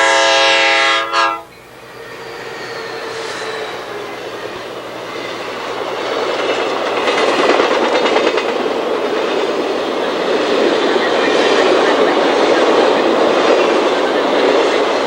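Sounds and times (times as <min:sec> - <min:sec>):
train horn blast: 0:00.0 - 0:05.7
train rumbling past: 0:00.0 - 0:15.0
wheels clicking over rail joints: 0:01.4 - 0:15.0.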